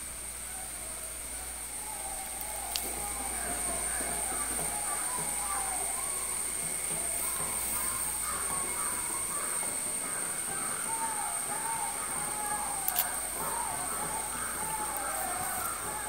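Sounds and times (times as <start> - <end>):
birds calling: 0.0 - 16.0
sharp clicks: 12.4 - 13.4.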